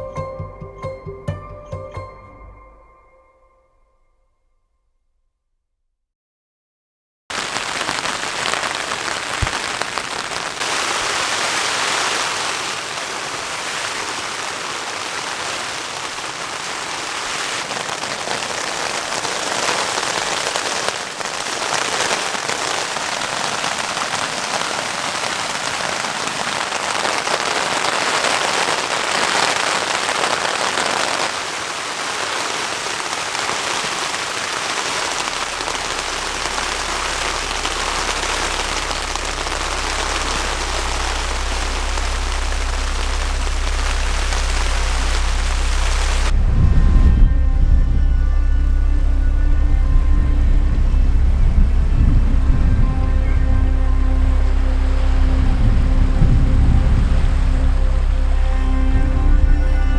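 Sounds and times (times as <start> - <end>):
heavy rainfall: 7.3 - 59.9
low rumble: 35.0 - 59.9.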